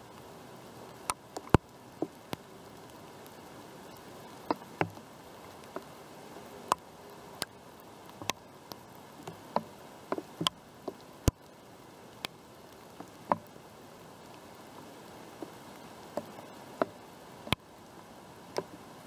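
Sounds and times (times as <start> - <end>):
rain hiss: 0.0 - 19.0
raindrops tapping a surface: 0.0 - 19.0.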